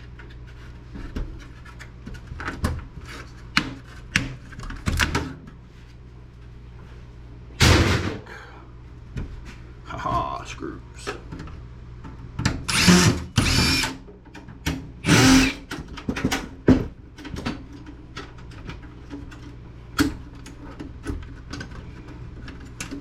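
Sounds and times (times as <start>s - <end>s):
power drill spinning: 12.7s - 14.0s, 15.0s - 15.7s.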